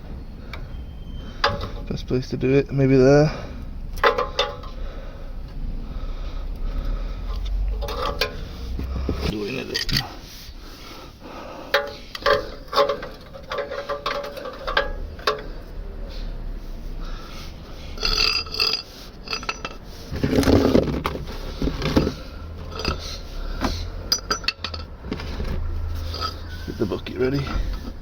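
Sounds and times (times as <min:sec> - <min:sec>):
metal clinking against metal: 0:04.0 - 0:04.8, 0:07.8 - 0:08.6, 0:11.7 - 0:15.7, 0:18.0 - 0:23.2, 0:23.9 - 0:25.1, 0:26.0 - 0:27.8.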